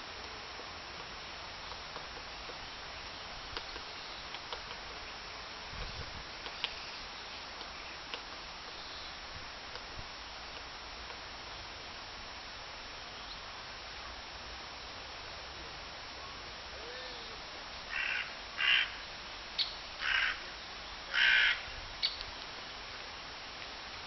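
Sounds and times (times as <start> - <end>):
bird harsh cawing calls: 17.9 - 20.5, 21.1 - 22.2.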